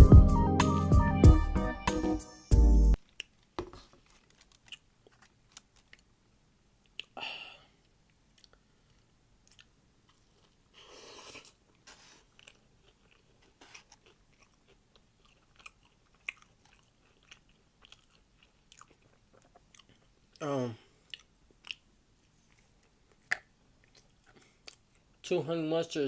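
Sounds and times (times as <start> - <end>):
person chewing food: 3.0 - 6.2, 6.8 - 7.2, 7.8 - 25.2
mouth clicks and smacks: 6.8 - 7.2, 7.8 - 10.2, 21.0 - 21.9, 22.5 - 25.1.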